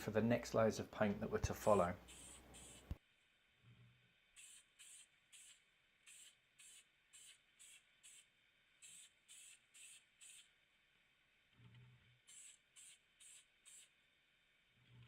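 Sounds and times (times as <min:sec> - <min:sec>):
aerosol spray can bursts: 0:04.4 - 0:10.5, 0:12.3 - 0:14.0.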